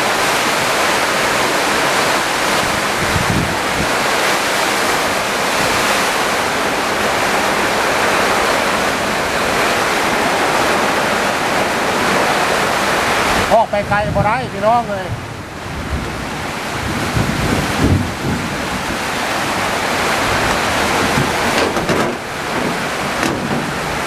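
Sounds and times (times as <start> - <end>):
heavy rain: 0.0 - 24.0
strong wind: 0.0 - 24.0
low thump: 21.1 - 23.8.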